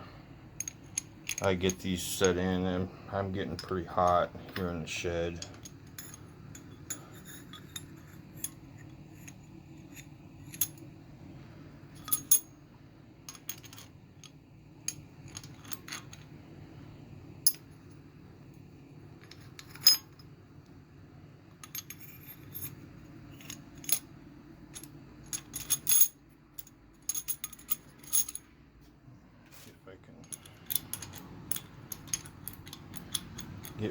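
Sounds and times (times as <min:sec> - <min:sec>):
metallic clinks of engine parts: 0:30.2 - 0:33.9.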